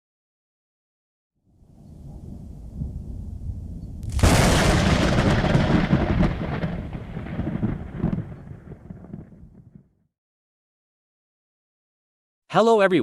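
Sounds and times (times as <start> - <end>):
thunder rumbling and cracking: 2.0 - 10.0.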